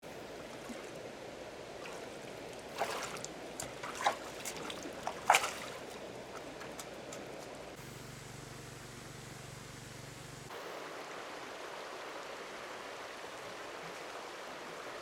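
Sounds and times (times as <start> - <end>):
water trickling: 0.1 - 7.8.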